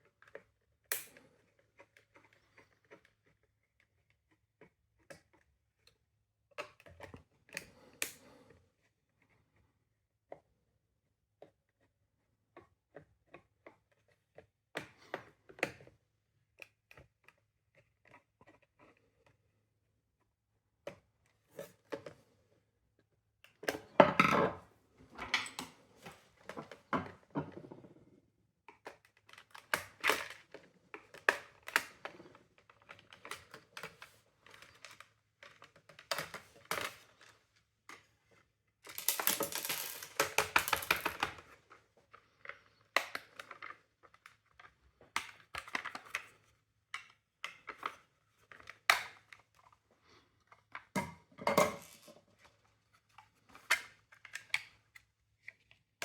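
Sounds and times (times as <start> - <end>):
plastic parts clicking and knocking: 23.4 - 38.2, 38.8 - 49.8
plastic parts clattering and scraping: 23.6 - 28.1, 28.8 - 49.8.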